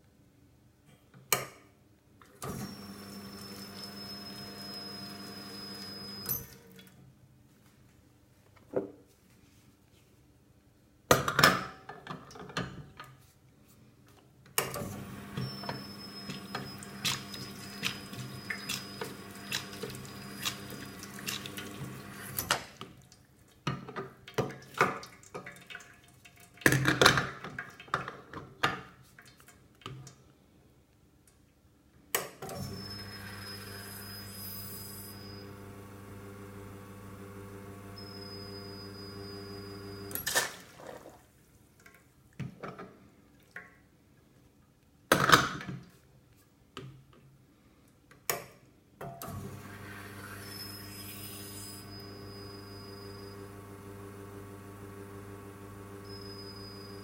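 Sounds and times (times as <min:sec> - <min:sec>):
water running: 0:16.3 - 0:22.4, 0:39.7 - 0:41.4.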